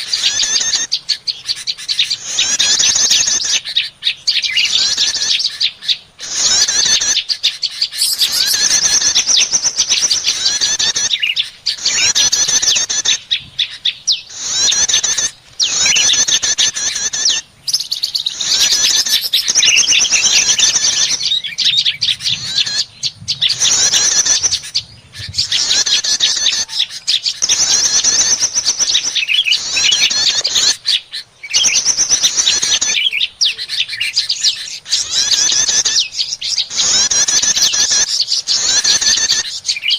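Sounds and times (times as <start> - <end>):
small birds chirping rapidly: 0.0 - 39.9.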